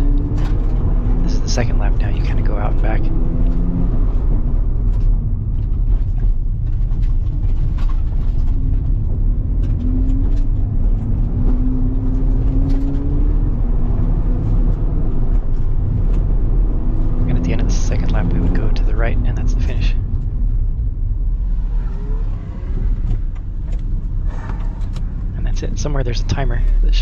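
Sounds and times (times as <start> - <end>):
rotary engine under hard driving: 0.0 - 27.0.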